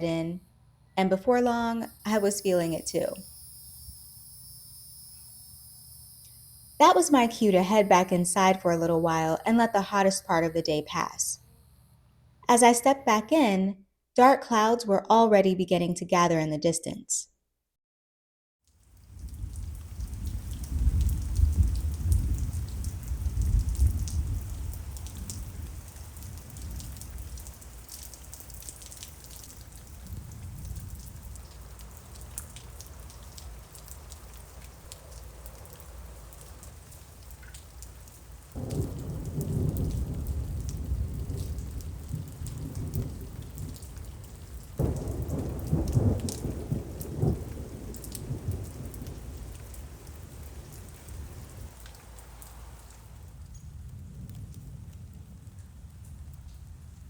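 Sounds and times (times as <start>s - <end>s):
steady rain with drips: 1.5s - 11.9s, 18.6s - 57.0s
rolling thunder: 19.1s - 27.5s, 29.9s - 31.8s, 38.6s - 51.8s, 53.3s - 57.0s.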